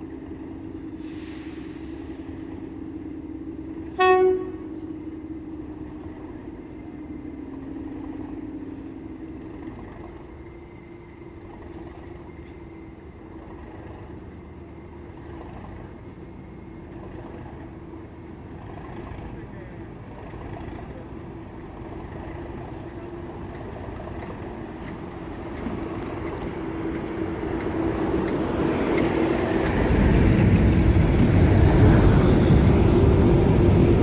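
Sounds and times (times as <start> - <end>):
locomotive horn toot: 3.9 - 4.9.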